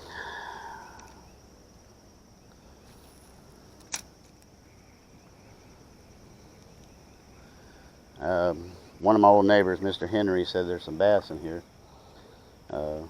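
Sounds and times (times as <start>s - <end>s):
crickets droning: 0.0s - 13.0s
sharp click: 3.8s - 4.5s.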